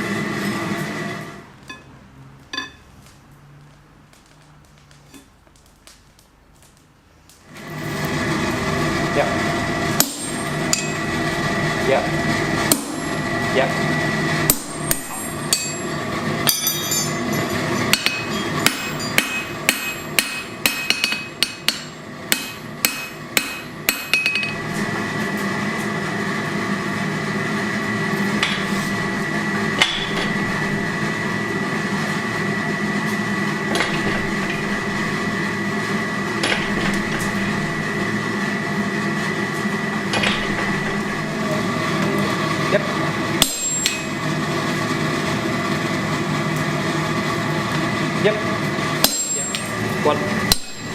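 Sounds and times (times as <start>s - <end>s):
hammer striking hot steel: 2.5s - 2.8s, 9.9s - 11.1s, 12.6s - 13.2s, 14.4s - 24.9s, 28.3s - 31.0s, 33.6s - 35.3s, 36.3s - 38.0s, 40.1s - 41.4s, 43.4s - 44.3s, 49.0s - 50.9s
machine with high whine: 7.5s - 50.9s.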